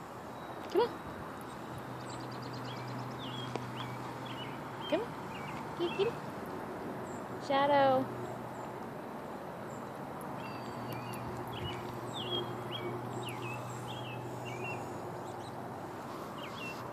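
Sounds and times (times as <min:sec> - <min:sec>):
low outdoor hum: 0:00.0 - 0:16.9
bird chirping: 0:00.4 - 0:06.3, 0:09.6 - 0:15.6, 0:16.3 - 0:16.9.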